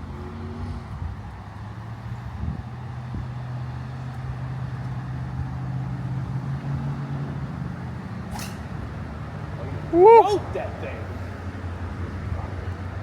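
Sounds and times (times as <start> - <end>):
wind noise: 2.3 - 3.4
golf cart humming: 2.9 - 13.0.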